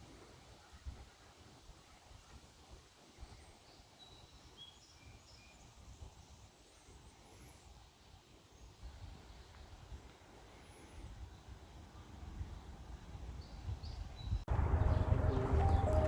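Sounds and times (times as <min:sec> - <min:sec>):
low uneven rumble: 0:14.5 - 0:16.0.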